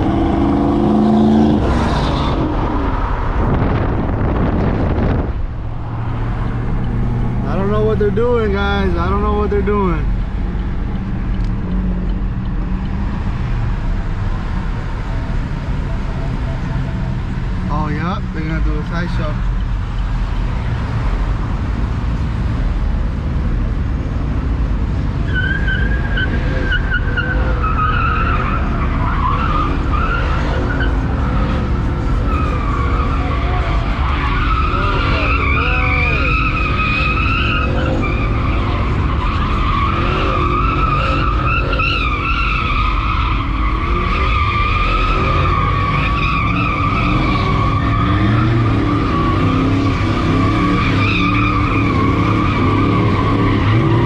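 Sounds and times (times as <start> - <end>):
tyres squealing: 25.3 - 54.0.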